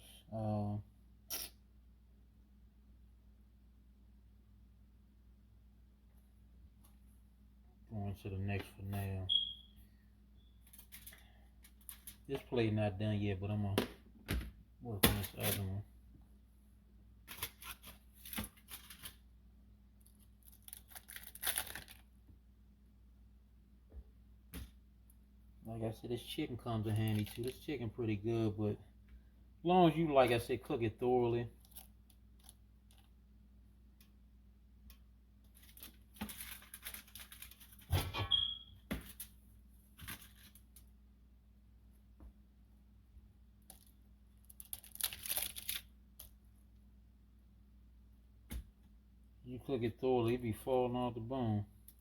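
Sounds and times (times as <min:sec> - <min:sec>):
utensils and food handled: 0:10.6 - 0:12.3, 0:20.1 - 0:22.0
food crinkling and scraping: 0:10.7 - 0:12.3, 0:17.3 - 0:19.2, 0:20.0 - 0:22.1, 0:26.8 - 0:27.7, 0:35.4 - 0:37.9, 0:39.0 - 0:40.8, 0:43.6 - 0:46.4
short squeak: 0:38.0 - 0:38.8.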